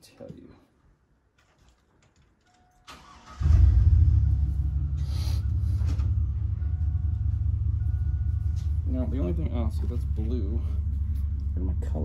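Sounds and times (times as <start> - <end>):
machine low rumble: 3.4 - 12.0.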